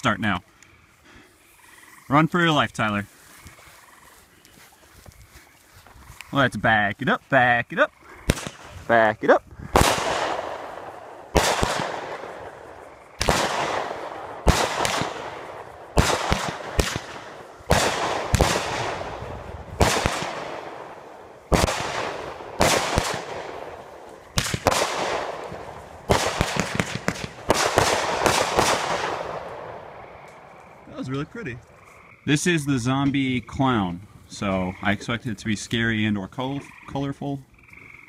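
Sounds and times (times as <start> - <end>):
firework cake shots: 21.6 - 29.5.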